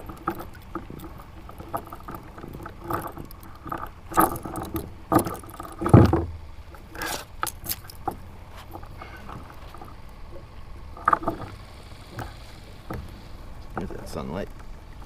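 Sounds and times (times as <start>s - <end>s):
fish knocking on plastic kayak: 0.0s - 6.4s
fish drumming croak: 0.0s - 15.0s.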